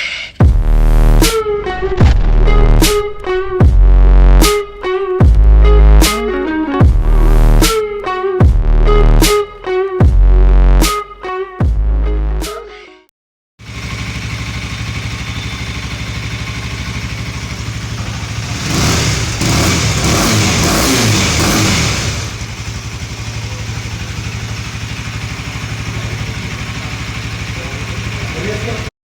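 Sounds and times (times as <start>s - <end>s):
motorcycle engine idling and revving: 13.6s - 28.9s.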